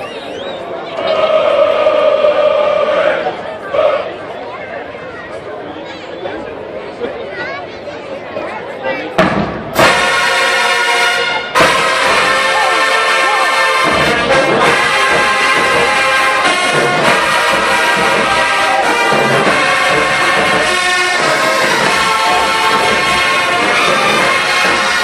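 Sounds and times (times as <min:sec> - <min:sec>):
marching band brass: 0:01.0 - 0:04.1, 0:09.2 - 0:25.0
drums: 0:09.1 - 0:10.6, 0:11.4 - 0:25.0.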